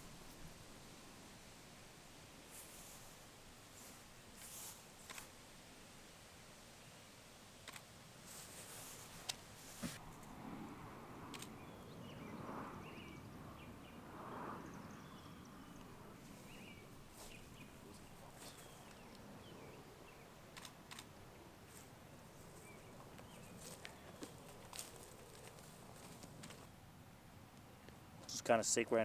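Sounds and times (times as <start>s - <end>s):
sharp clicks: 7.6s - 7.9s, 11.3s - 11.6s, 20.5s - 21.2s
bird chirps: 11.5s - 14.0s, 14.6s - 20.7s.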